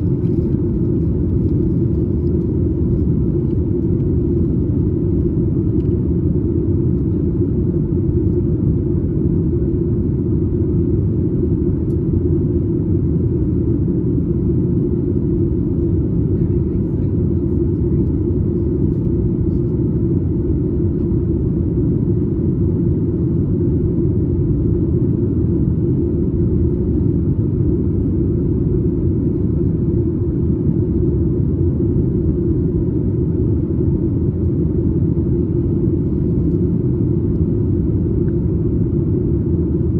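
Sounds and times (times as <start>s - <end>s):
airplane cabin noise: 0.0s - 39.9s.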